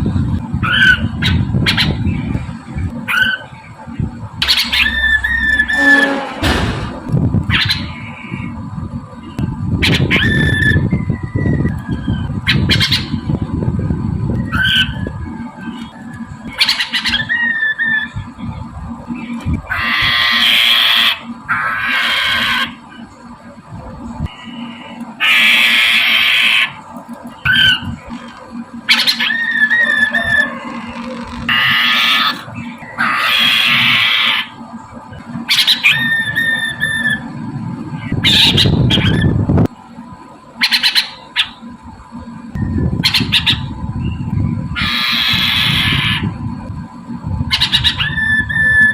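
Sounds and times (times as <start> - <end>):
bird harsh rasping squawks: 4.4 - 6.6
bird calling: 4.4 - 6.7, 28.9 - 34.6, 35.4 - 37.3, 40.6 - 41.7
whistled bird note: 4.4 - 6.7.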